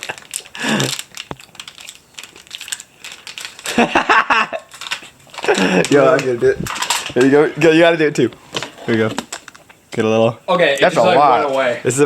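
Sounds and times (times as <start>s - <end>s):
plastic containers clicking and crinkling: 0.0s - 7.4s, 8.3s - 9.8s.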